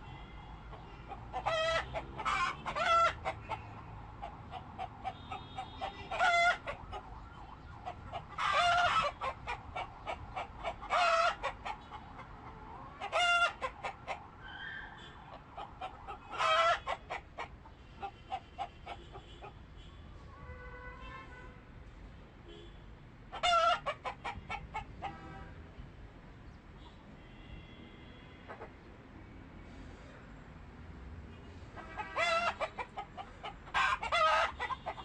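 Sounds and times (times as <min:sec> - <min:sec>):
chickens clucking: 0:00.7 - 0:14.3, 0:15.2 - 0:19.6, 0:23.3 - 0:25.2, 0:28.5 - 0:28.7, 0:31.8 - 0:35.0
loud short chicken calls: 0:01.3 - 0:06.8, 0:08.3 - 0:11.8, 0:16.1 - 0:19.5, 0:31.8 - 0:35.0.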